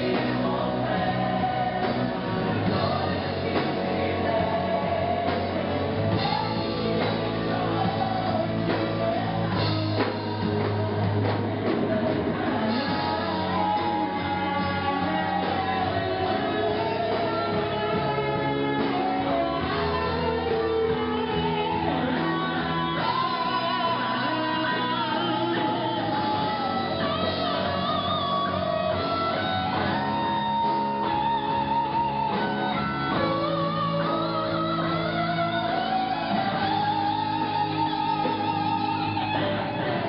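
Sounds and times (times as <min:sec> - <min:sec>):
band chords and bass: 0:00.0 - 0:40.0
lead guitar melody: 0:00.0 - 0:40.0.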